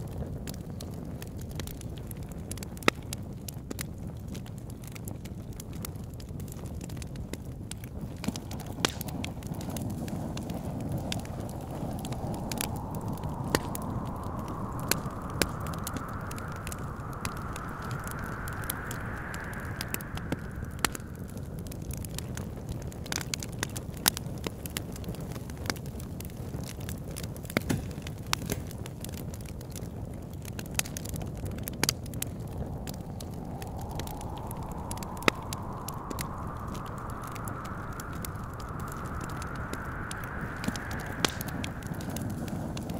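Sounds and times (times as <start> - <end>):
wood fire crackling and popping: 0.0 - 42.9
wind whistling: 7.7 - 23.3, 30.4 - 42.9
low rumble: 10.3 - 22.4, 30.7 - 42.9.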